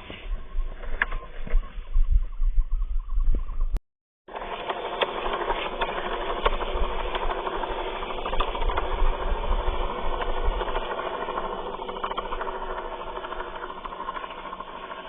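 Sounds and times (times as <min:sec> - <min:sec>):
toy gear motors whirring: 0:04.3 - 0:15.0.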